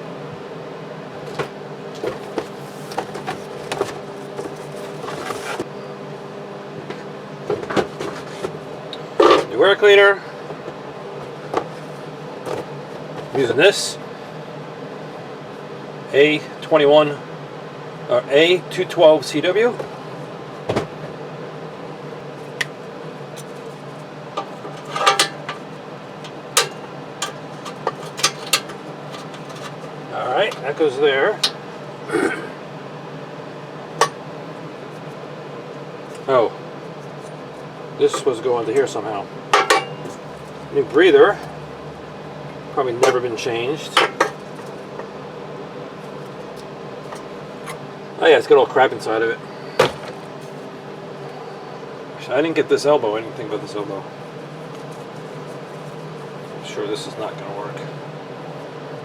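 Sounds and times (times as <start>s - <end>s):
steady low hum: 0.0s - 59.0s
knocks and clunks of handled parts: 1.3s - 5.6s, 24.4s - 30.7s.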